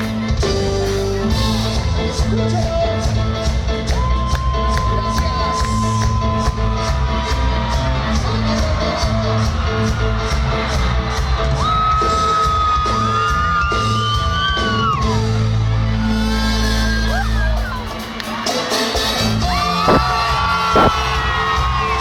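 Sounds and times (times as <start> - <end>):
live cumbia music: 0.0 - 11.4, 20.7 - 21.0
crowd whooping and shouting: 3.8 - 18.5, 19.4 - 22.0.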